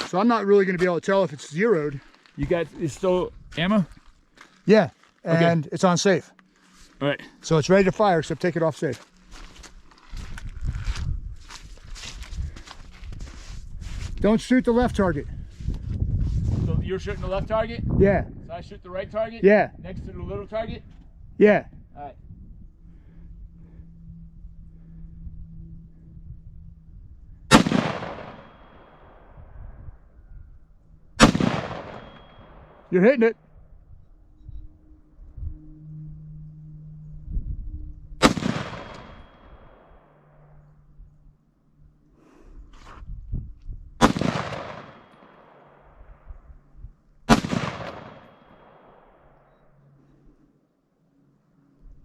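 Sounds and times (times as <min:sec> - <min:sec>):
rifle shot with echo: 0:27.5 - 0:29.4, 0:31.2 - 0:32.8, 0:38.2 - 0:39.8, 0:44.0 - 0:45.9, 0:47.3 - 0:49.0.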